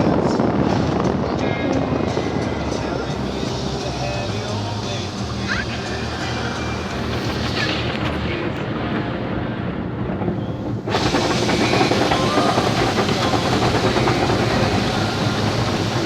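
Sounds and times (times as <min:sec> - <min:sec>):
car wash machinery rumbling: 0:00.0 - 0:16.0
hissing rush of spray: 0:10.9 - 0:16.0.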